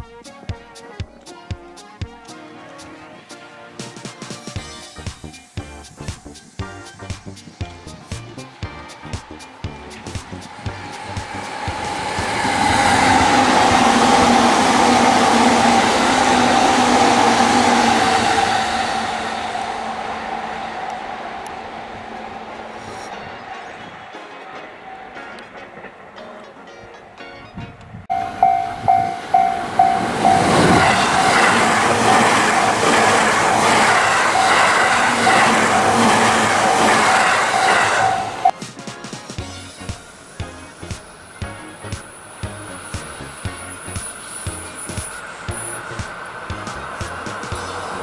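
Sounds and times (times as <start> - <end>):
electric train passing at speed: 0.8 - 48.0
steady whine: 4.8 - 27.2, 28.1 - 38.5
level-crossing alarm dinging: 28.1 - 38.6.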